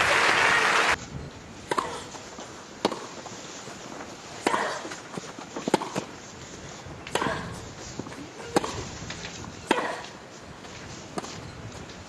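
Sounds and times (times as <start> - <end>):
tennis ball hit by rackets: 1.7 - 2.1, 2.8 - 3.2, 5.6 - 6.1, 7.1 - 7.6, 8.4 - 8.9, 9.6 - 10.2.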